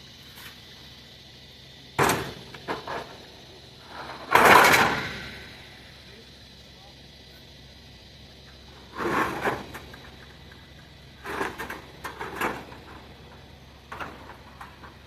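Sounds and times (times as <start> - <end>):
scrap metal scraping and clattering: 3.8 - 5.3, 8.8 - 10.1, 11.2 - 13.0.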